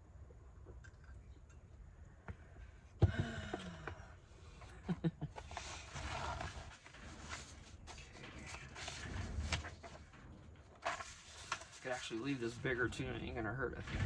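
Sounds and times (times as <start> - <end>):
paper rustling on a table: 5.4 - 12.6.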